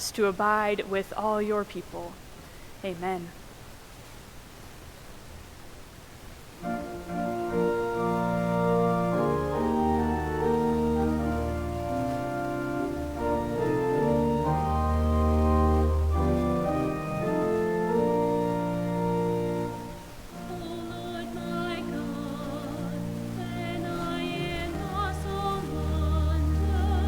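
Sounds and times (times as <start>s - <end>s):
organ playing sustained chords: 6.6s - 27.0s.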